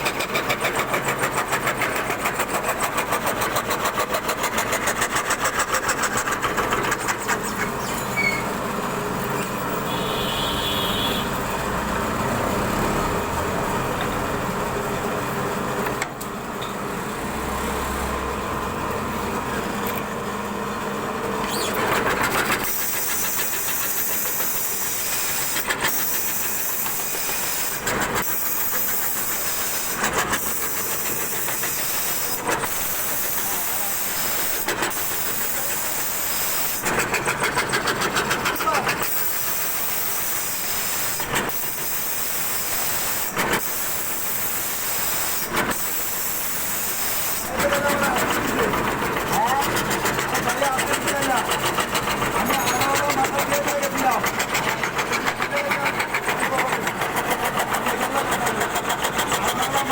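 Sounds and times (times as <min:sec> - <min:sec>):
router cutting wood: 0:21.5 - 0:59.9.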